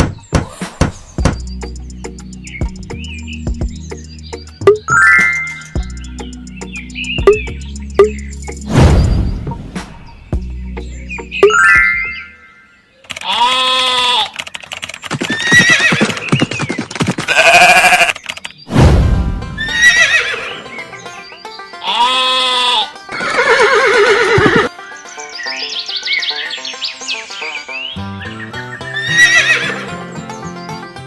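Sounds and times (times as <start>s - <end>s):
background music: 0.0s - 12.9s, 18.8s - 31.0s
farm animal calls: 13.1s - 14.5s, 15.2s - 18.4s, 19.6s - 30.1s
horse whinnies: 15.3s - 16.3s, 17.3s - 18.2s, 19.7s - 20.6s, 21.9s - 24.7s, 29.0s - 29.8s.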